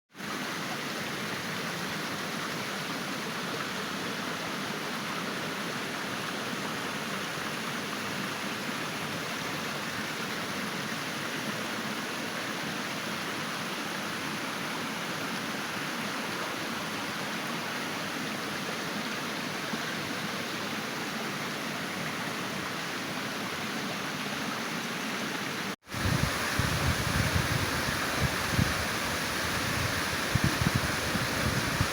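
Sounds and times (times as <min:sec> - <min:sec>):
waterfall roaring: 0:20.5 - 0:31.9.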